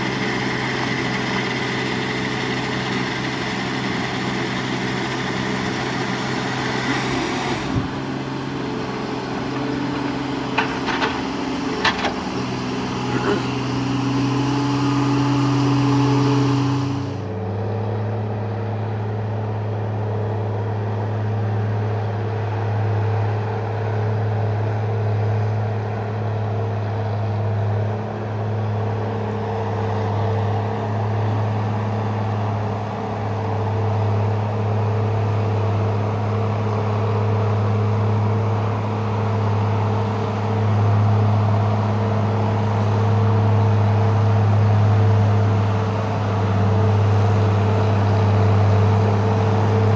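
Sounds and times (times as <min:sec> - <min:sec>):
heavy machine engine running: 0:00.0 - 0:17.5, 0:28.6 - 0:49.9.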